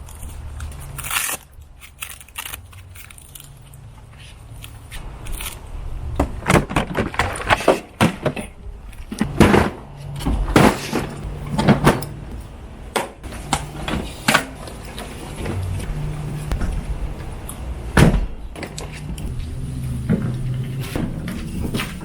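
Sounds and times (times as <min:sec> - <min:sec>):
low steady hum: 0:00.0 - 0:22.0
knocks thuds and clatters: 0:06.1 - 0:15.6, 0:16.5 - 0:22.0.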